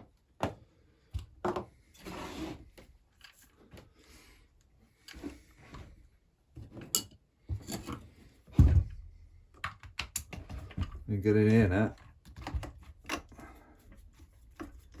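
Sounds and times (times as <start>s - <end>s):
tools and parts clicking and knocking: 9.5s - 13.4s.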